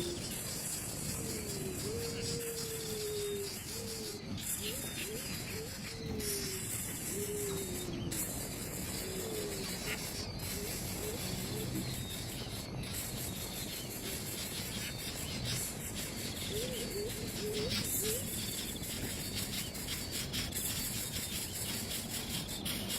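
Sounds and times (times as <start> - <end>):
low whistled calls: 0.0 - 22.9.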